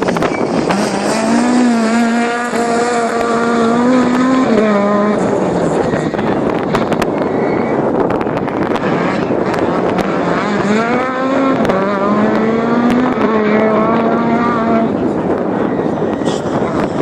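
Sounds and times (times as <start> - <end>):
dense rush of noise: 0.0 - 17.0
rally car engine revving: 0.0 - 17.0.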